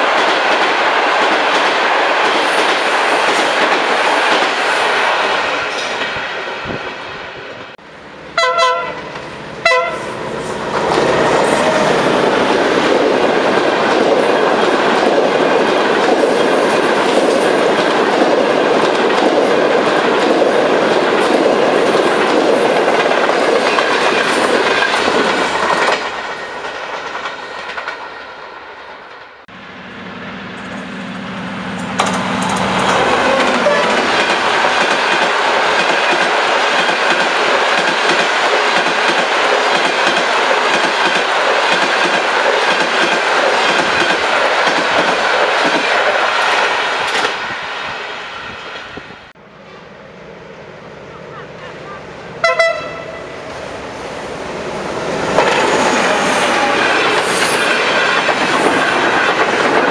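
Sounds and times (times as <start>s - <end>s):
low steady train hum: 0.0s - 59.9s
trains rushing past: 0.0s - 59.9s
train horn blasts: 8.4s - 10.2s, 32.9s - 34.1s, 52.4s - 53.4s.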